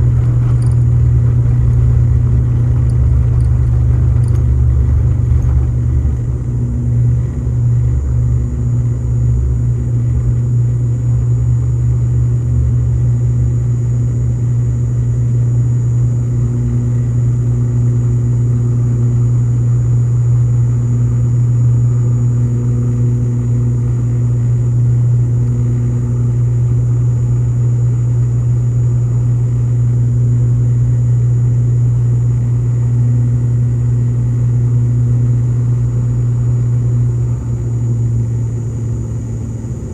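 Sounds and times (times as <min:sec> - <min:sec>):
thin high whine: 0:00.0 - 0:10.4
turboprop cabin drone: 0:00.0 - 0:39.9.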